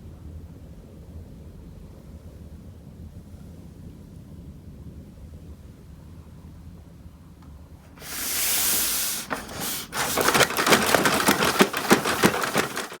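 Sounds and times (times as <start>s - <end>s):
toy truck clattering knocks: 8.0s - 13.0s
toy truck rolling hiss: 8.0s - 13.0s.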